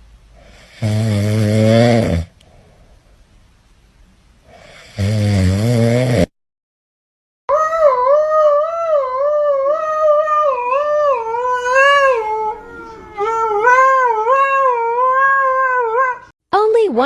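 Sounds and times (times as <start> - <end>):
dog howling: 7.5 - 16.3.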